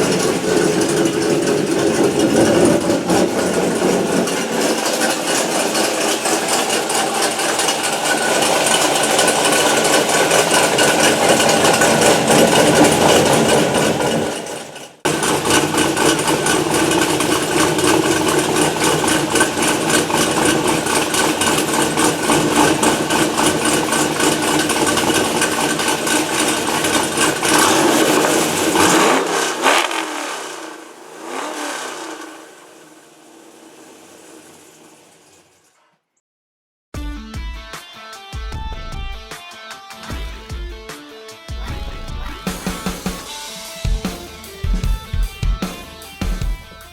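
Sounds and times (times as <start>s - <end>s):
car engine running: 0.0s - 35.6s.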